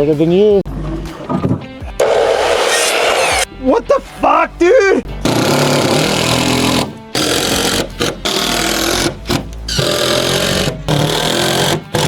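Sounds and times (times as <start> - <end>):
power saw cutting wood: 2.0 - 3.5, 5.2 - 12.0.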